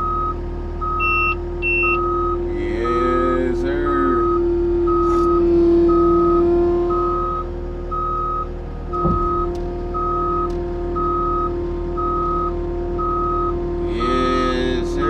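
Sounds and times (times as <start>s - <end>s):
backup alarm beeping: 0.0s - 14.9s
diesel engine running: 0.0s - 15.0s
knock: 9.0s - 9.4s.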